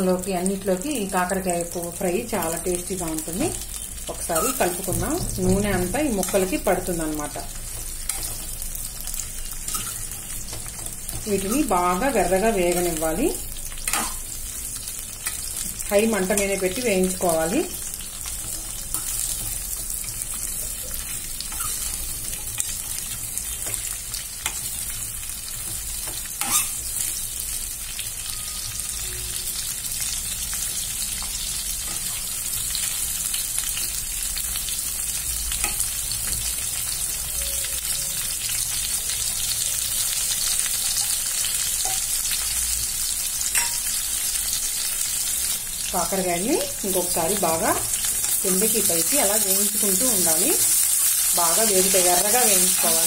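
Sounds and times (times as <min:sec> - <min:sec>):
vegetables sizzling in hot oil: 0:00.0 - 0:53.0
steel spoon clinking against pan: 0:26.1 - 0:26.8, 0:43.5 - 0:44.0.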